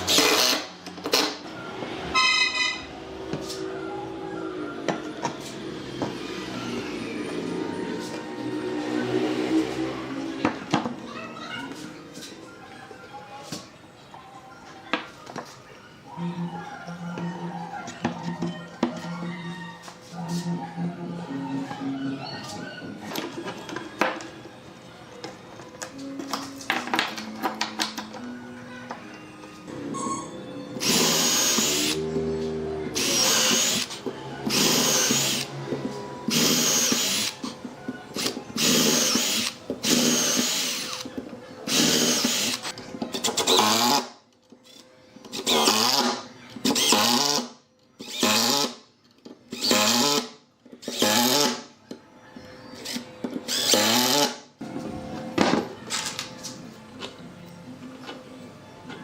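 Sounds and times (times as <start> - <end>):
electric drill motor whining: 30.8 - 37.5, 38.1 - 41.1, 41.7 - 42.7, 46.7 - 47.4, 48.0 - 48.8, 49.5 - 51.6, 52.8 - 54.4.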